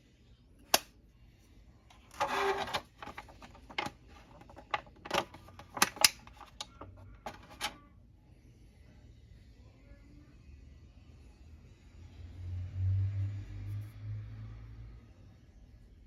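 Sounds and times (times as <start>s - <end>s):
plastic packaging clicks and taps: 3.0s - 7.5s.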